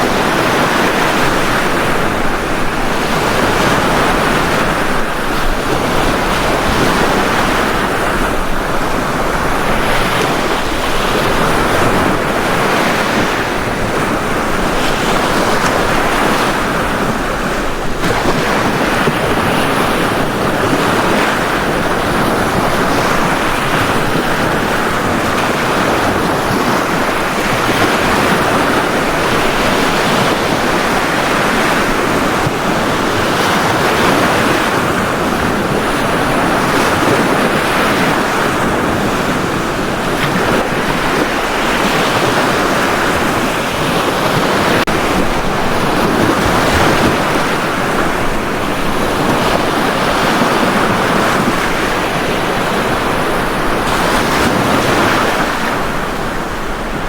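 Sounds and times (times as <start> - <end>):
surf breaking on beach: 0.0 - 57.0.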